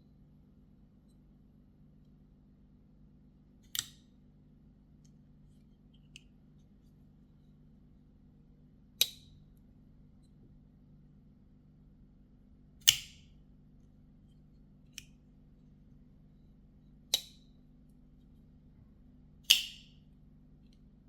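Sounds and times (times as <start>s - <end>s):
knife flicking open with metallic snaps: 3.6s - 4.1s, 12.8s - 13.2s, 19.5s - 19.9s.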